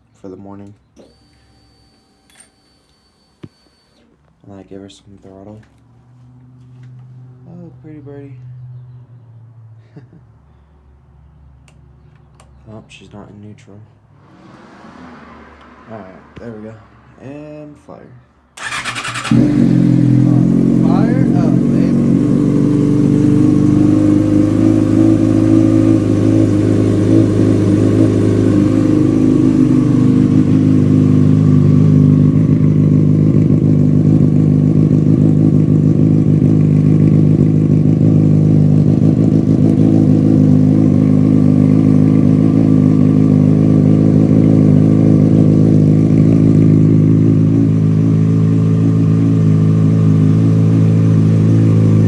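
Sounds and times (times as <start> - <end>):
motorcycle engine idling: 18.6 - 52.0.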